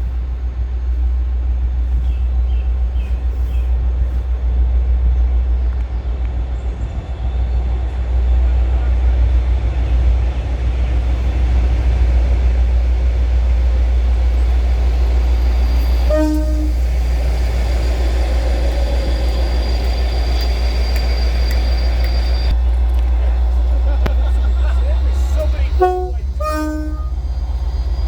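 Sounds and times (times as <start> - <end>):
train rumbling past: 0.0 - 28.0
train horn toot: 13.8 - 22.6, 24.0 - 27.7.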